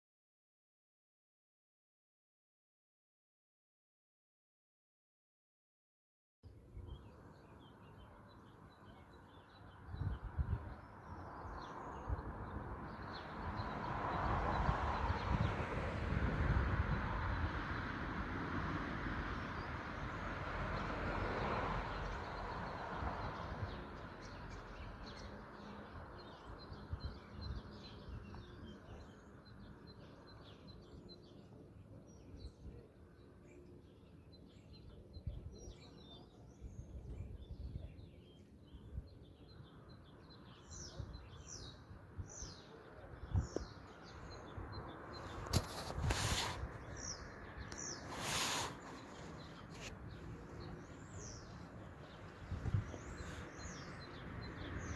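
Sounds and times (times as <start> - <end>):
small birds chirping: 6.8 - 15.7, 21.9 - 54.9.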